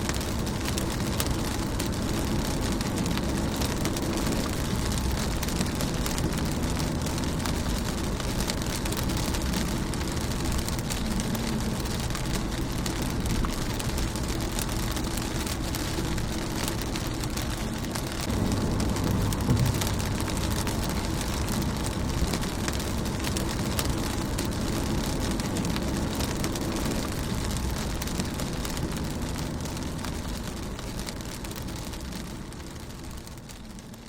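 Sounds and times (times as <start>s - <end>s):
rain hissing on a car: 0.0s - 34.0s
raindrop taps: 0.1s - 34.0s.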